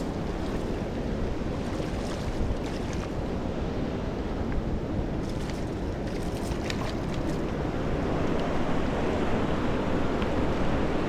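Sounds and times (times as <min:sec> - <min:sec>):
river water rushing: 0:00.0 - 0:04.2, 0:04.9 - 0:08.1.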